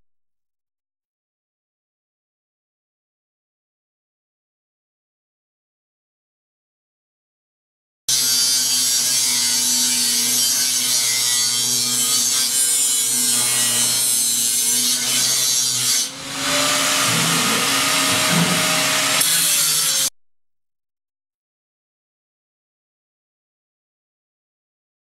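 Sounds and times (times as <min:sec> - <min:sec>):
angle grinder on steel: 0:08.1 - 0:20.1.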